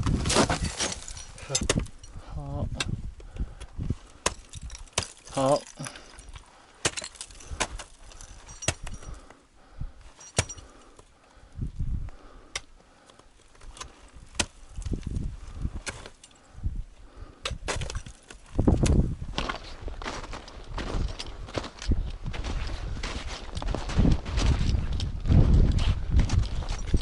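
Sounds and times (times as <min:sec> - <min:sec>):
gear clicking and clinking: 0:04.1 - 0:09.3, 0:26.2 - 0:27.0
footsteps in snow: 0:19.3 - 0:26.9.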